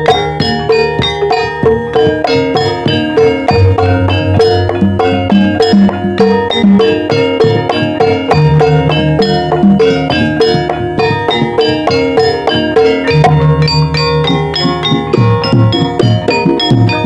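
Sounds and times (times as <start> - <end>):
gamelan metallophones playing: 0.0 - 17.0
low sustained tones: 0.0 - 17.0.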